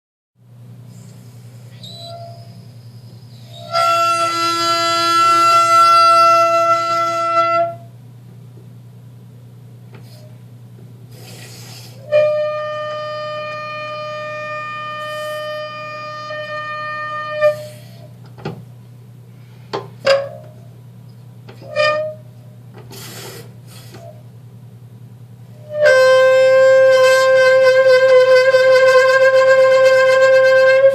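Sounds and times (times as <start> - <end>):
low steady hum: 0.4 - 30.9
short squeaks: 1.0 - 4.0
faucet squealing: 1.7 - 4.6.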